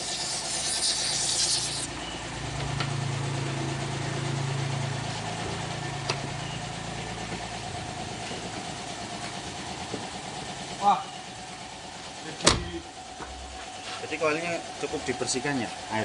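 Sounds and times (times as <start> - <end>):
compressed air hissing: 0.0 - 1.9
car engine idling: 0.1 - 16.0.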